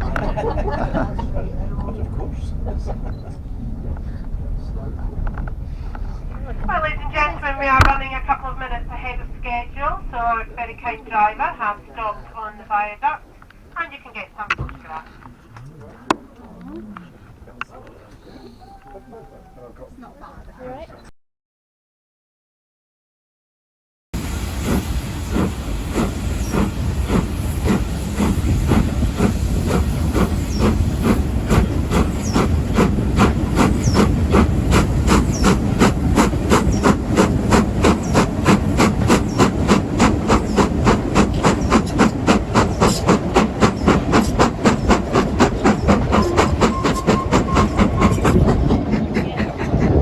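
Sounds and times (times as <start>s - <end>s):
train rumble: 0.0s - 20.1s, 24.2s - 50.0s
steam hissing: 24.2s - 49.9s
steam locomotive chuffing: 24.2s - 50.0s.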